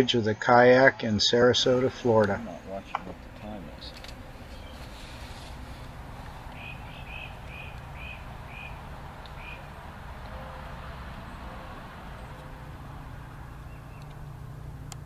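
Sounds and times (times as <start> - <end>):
low background rush: 0.0 - 15.0.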